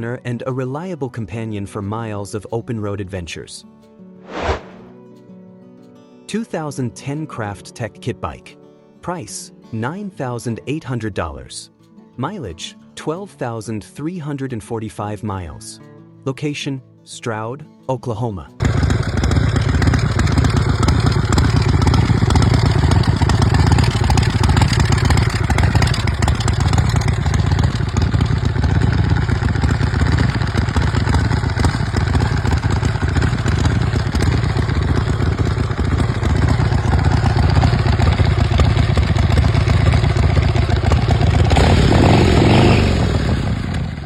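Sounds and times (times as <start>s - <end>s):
motorcycle engine running: 18.6s - 44.0s.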